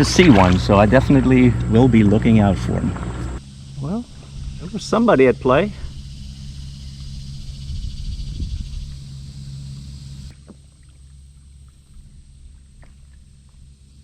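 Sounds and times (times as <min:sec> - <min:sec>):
motorboat engine droning: 0:00.0 - 0:14.0.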